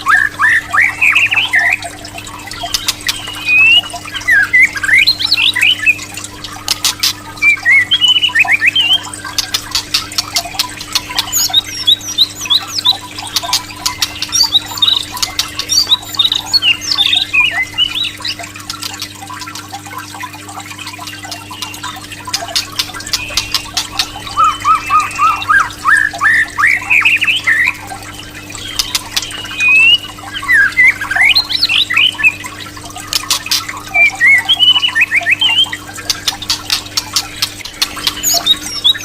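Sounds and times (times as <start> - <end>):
bird chirps and whistled notes: 0.0 - 1.8, 2.4 - 6.0, 7.4 - 9.6, 10.3 - 19.0, 21.3 - 32.4, 33.5 - 39.0.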